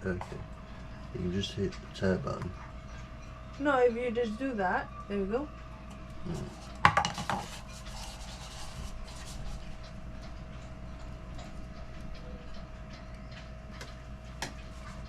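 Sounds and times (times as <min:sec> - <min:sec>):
steady low hum: 0:00.0 - 0:15.0
small irregular ticks: 0:08.9 - 0:15.0.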